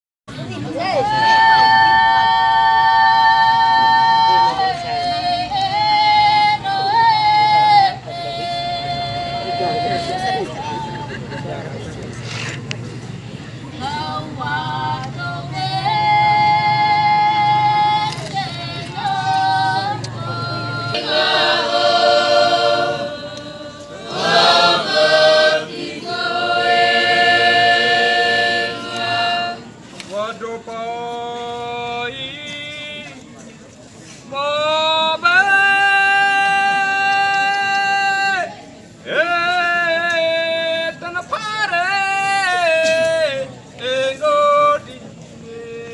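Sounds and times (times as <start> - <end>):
choir singing in harmony: 1.0 - 11.2, 13.8 - 29.8.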